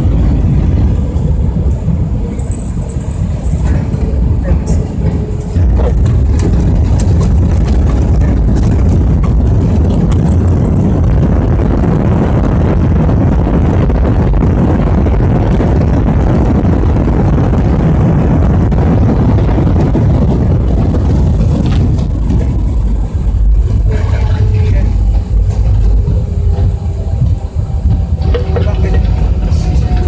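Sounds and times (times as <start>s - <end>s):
jet engines roaring: 0.0s - 30.0s
runway rumble: 0.0s - 30.0s.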